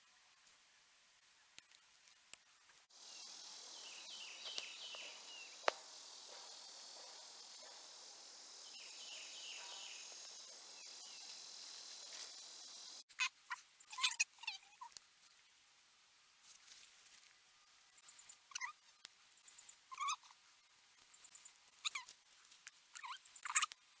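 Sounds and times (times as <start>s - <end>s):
insects trilling: 2.9s - 15.0s, 17.9s - 24.0s.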